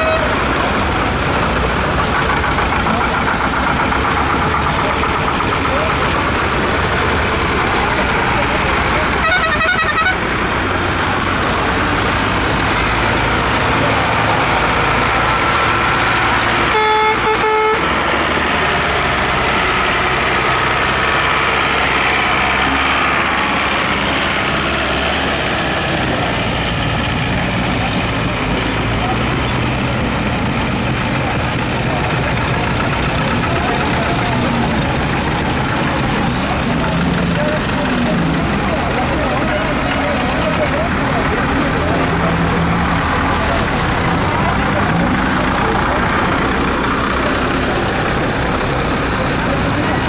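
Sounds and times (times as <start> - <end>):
tractor engines running: 0.0 - 50.0
horn blast: 9.1 - 10.4, 16.6 - 18.0.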